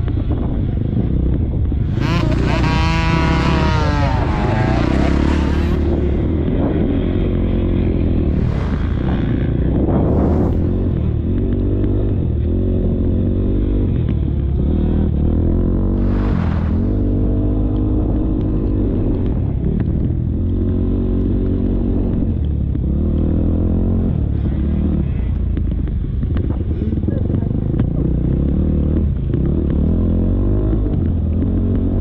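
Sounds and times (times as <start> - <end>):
motocross bike engine revving: 1.8 - 11.3, 14.7 - 17.7
rushing noise bursts: 8.2 - 11.0, 16.0 - 17.3.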